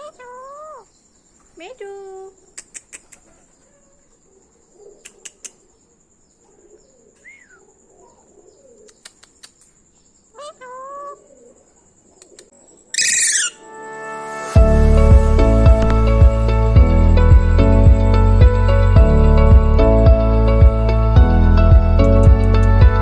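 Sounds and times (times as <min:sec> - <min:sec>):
parrot squawk: 0:10.4 - 0:11.2, 0:13.0 - 0:13.7
parrot whistling: 0:13.0 - 0:13.7.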